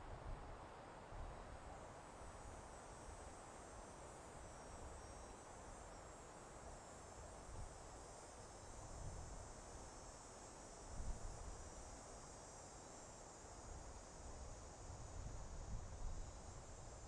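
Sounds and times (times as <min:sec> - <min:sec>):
wind blowing through forest: 0:00.0 - 0:17.0
insects chirring: 0:01.4 - 0:17.0.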